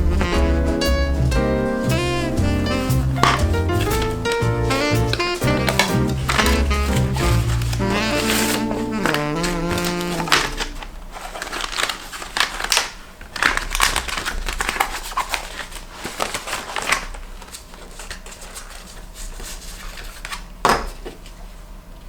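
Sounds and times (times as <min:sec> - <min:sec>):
clicks taps and rustling: 0:00.0 - 0:14.8.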